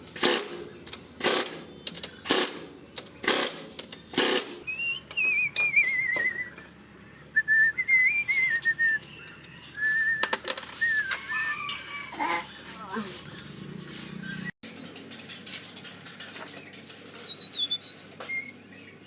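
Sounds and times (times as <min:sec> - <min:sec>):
person whistling a tune: 0:04.7 - 0:06.6, 0:07.4 - 0:09.0, 0:09.8 - 0:11.6.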